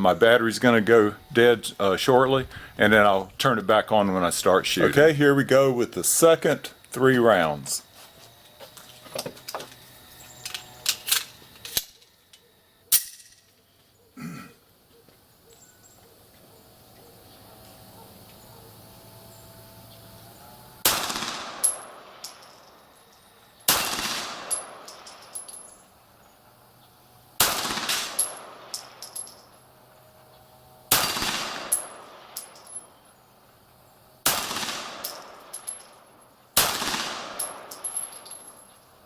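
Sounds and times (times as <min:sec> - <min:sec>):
pistol shots: 0:20.8 - 0:22.5, 0:23.7 - 0:25.4, 0:27.4 - 0:29.1, 0:30.9 - 0:32.7, 0:34.2 - 0:35.8, 0:36.6 - 0:38.2.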